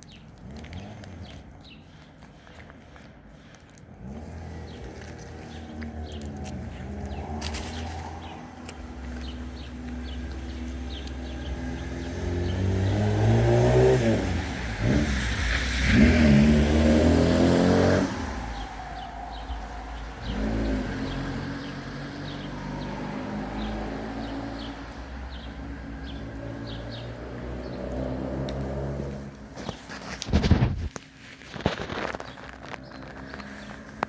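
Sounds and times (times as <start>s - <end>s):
car engine revving and accelerating: 4.0s - 29.6s.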